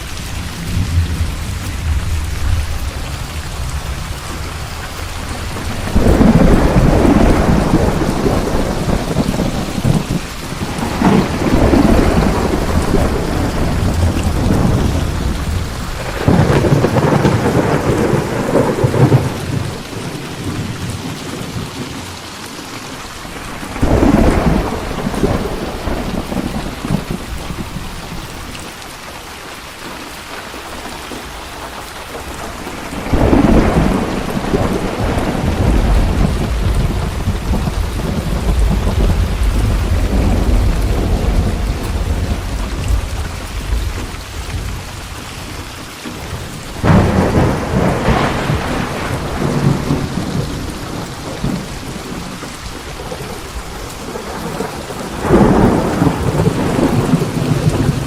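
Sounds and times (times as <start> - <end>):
thunder: 0.0 - 22.0, 23.4 - 28.6, 30.7 - 58.0
heavy rain: 0.0 - 58.0.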